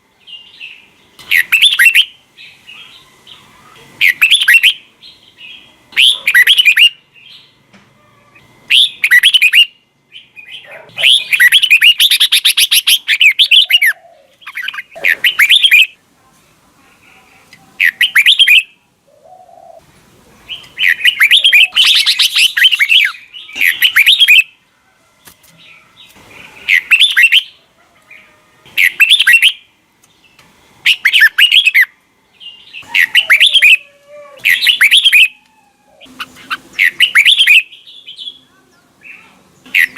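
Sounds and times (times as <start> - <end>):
bird singing whistled phrases: 0.4 - 3.4, 4.0 - 4.9, 6.0 - 7.4, 8.7 - 16.0, 17.8 - 18.8, 20.5 - 24.5, 26.6 - 27.6, 28.8 - 29.6, 30.8 - 33.8, 34.4 - 35.4, 36.0 - 38.5
bird rapid chattering notes: 1.2 - 2.1, 4.0 - 4.8, 10.4 - 15.9, 20.5 - 24.5, 26.6 - 27.5, 28.8 - 29.6, 30.8 - 31.9, 34.5 - 35.4, 36.1 - 37.7, 39.6 - 39.9.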